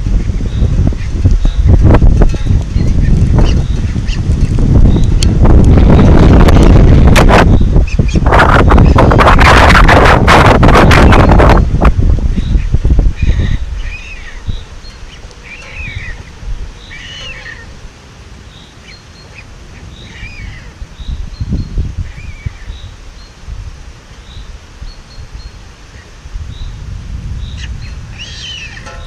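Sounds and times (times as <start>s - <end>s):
wind rumble on microphone: 0.0s - 18.5s, 19.5s - 29.0s
bird calls rising and falling: 12.4s - 17.8s, 27.4s - 29.0s.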